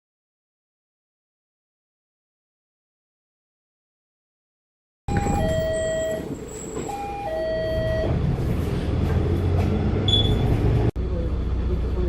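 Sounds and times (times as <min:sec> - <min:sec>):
bus engine running: 0:05.1 - 0:12.0.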